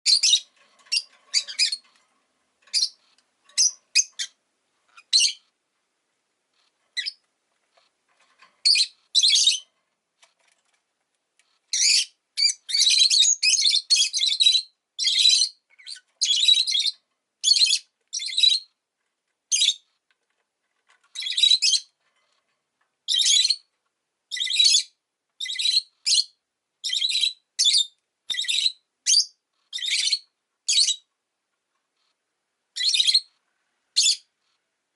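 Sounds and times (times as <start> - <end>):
lovebird chirping: 0.1 - 2.0, 2.6 - 5.5, 6.9 - 7.2, 8.6 - 9.7, 11.7 - 18.7, 19.5 - 19.9, 21.2 - 22.0, 23.1 - 23.7, 24.3 - 31.1, 32.7 - 33.4, 34.0 - 34.3.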